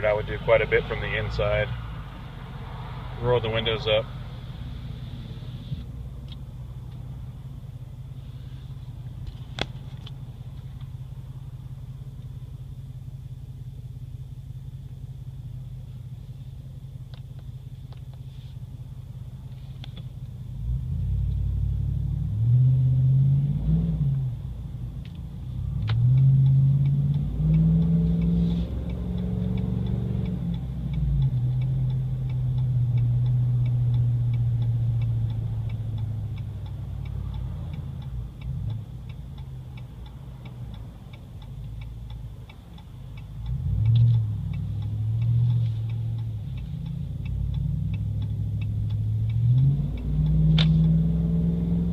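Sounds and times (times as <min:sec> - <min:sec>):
truck engine exhaust note: 0:00.0 - 0:09.3, 0:20.4 - 0:51.9
light ticking: 0:24.1 - 0:51.9.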